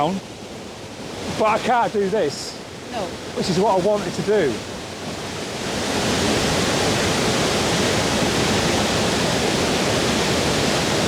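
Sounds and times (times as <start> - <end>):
waterfall rushing: 1.0 - 11.0.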